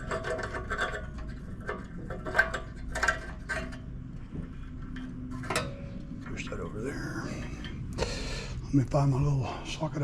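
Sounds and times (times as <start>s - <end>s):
metal engine parts clinking: 0.0s - 4.0s.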